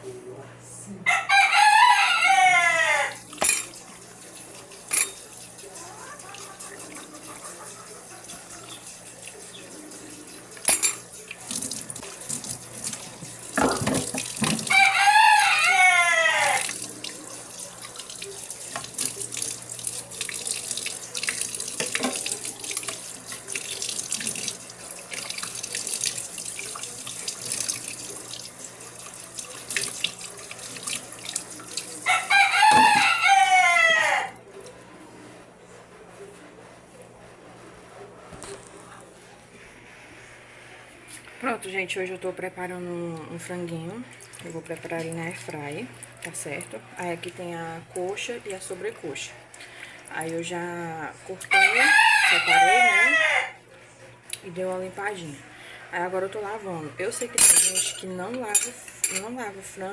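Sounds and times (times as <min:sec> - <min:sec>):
rooster crowing: 0:01.0 - 0:03.3, 0:14.6 - 0:17.3, 0:31.9 - 0:34.4, 0:51.5 - 0:53.6
tap water running into sink: 0:03.3 - 0:15.2, 0:16.4 - 0:33.1.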